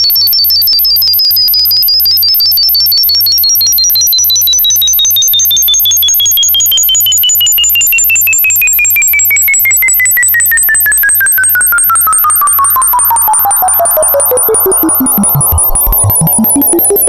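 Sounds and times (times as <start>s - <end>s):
steady very high tone: 11.8s - 17.0s
electronic tone gliding downward: 12.0s - 17.0s
electronic tone gliding upward: 12.1s - 17.0s
low repeating throb: 12.9s - 17.0s.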